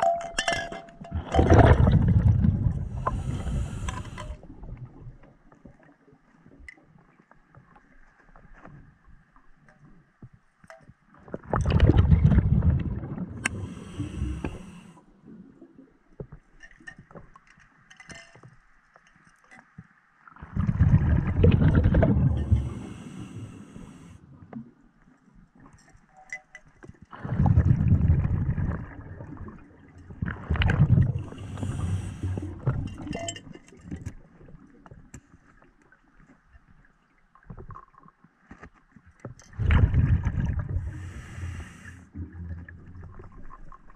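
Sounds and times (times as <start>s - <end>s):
exhaled bubbles rumbling: 1.1s - 5.4s, 11.3s - 15.8s, 20.4s - 24.5s, 27.1s - 34.9s, 39.5s - 43.9s.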